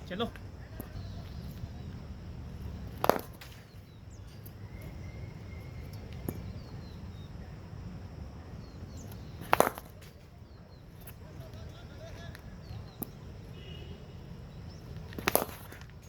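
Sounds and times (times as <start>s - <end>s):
cricket bat striking ball: 2.8s - 3.8s, 9.1s - 10.2s, 15.0s - 16.0s.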